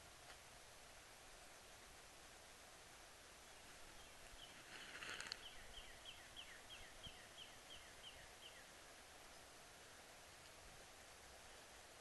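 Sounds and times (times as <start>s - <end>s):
rustle: 0.0s - 12.0s
bird calling: 3.5s - 8.8s.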